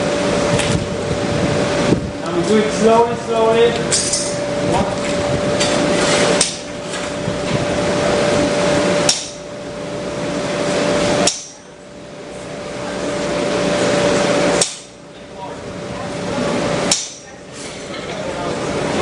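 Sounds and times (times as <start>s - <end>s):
rushing noise with low hum: 0.0s - 11.3s
hammer striking steel on anvil: 9.1s - 9.4s, 11.2s - 11.6s, 14.6s - 15.0s, 16.9s - 17.3s.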